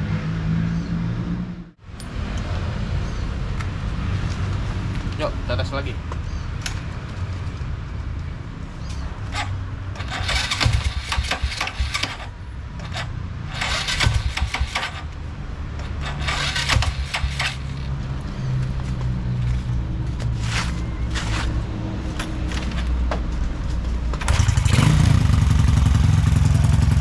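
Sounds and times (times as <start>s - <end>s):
motorcycle engine revving: 9.2s - 15.2s, 15.8s - 18.0s, 24.2s - 27.0s.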